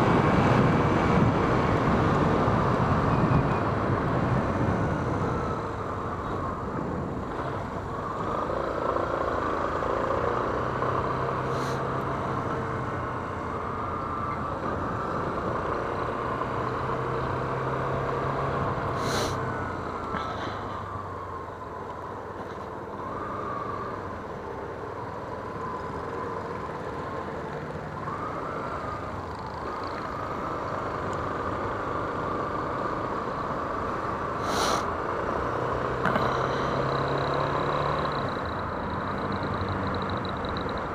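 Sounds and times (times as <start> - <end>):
wind noise: 0.0 - 8.0.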